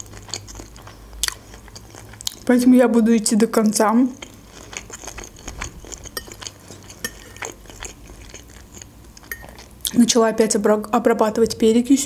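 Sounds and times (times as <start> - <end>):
chewing pasta: 0.0 - 2.7, 3.3 - 10.0
fork clicking on ceramic plate: 9.2 - 9.6.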